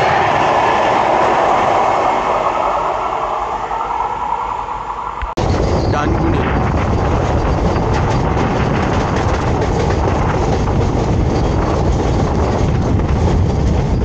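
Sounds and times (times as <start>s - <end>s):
train rumbling on rails: 0.0s - 14.0s
wheels clacking over rail joints: 6.7s - 14.0s.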